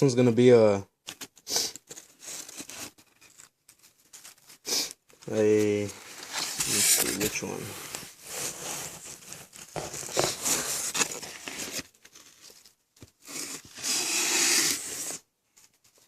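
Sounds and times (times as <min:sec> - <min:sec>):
packaging rustling: 0:01.1 - 0:16.0
packaging tearing: 0:08.8 - 0:12.5, 0:13.2 - 0:15.2.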